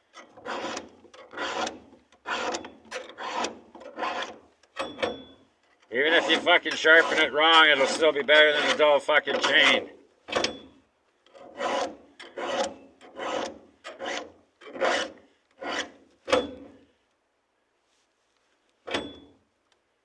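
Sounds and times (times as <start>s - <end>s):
hand file rasping on chain: 0.2s - 4.4s, 6.0s - 9.8s, 11.3s - 16.0s.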